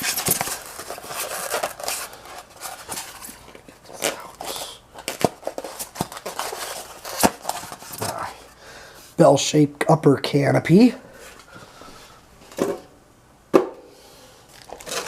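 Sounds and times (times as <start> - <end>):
packaging rustling: 0.0 - 8.4, 14.5 - 15.0.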